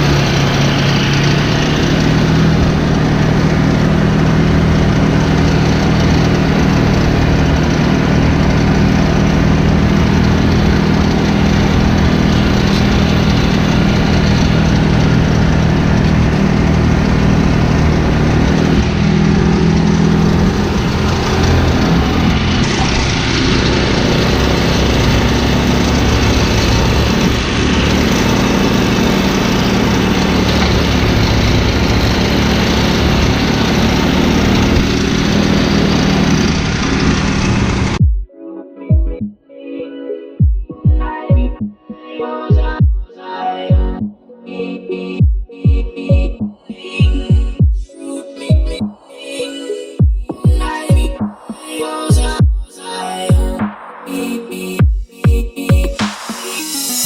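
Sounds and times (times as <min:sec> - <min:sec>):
mower engine running: 0:00.0 - 0:38.0.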